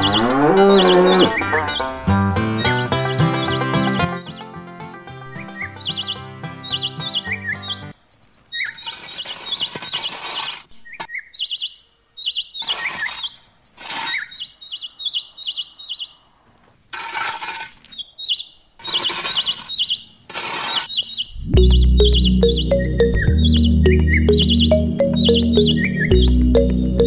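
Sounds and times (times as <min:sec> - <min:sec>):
birds chirping: 0:00.0 - 0:04.6, 0:05.2 - 0:10.2, 0:10.8 - 0:16.3, 0:20.8 - 0:27.0
metal rake scraping sand: 0:08.6 - 0:11.1, 0:12.6 - 0:14.4, 0:16.8 - 0:18.0, 0:18.8 - 0:21.0.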